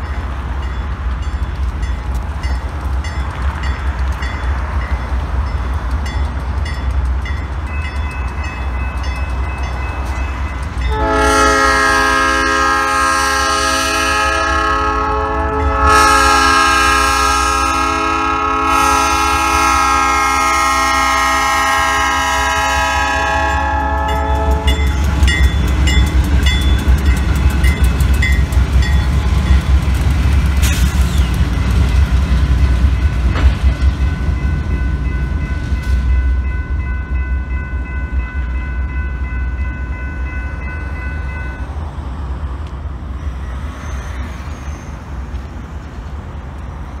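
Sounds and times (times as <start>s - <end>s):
crossing bells ringing: 0.0s - 14.7s, 19.7s - 29.9s, 31.5s - 42.1s
locomotive engine rumble: 0.0s - 47.0s
locomotive horn: 10.8s - 25.1s.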